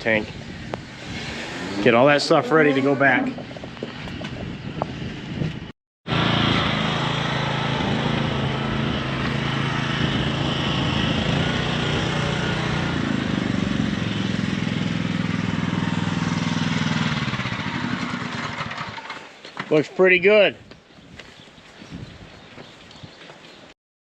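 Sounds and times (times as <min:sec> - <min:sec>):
engine running steadily: 0:03.0 - 0:19.3.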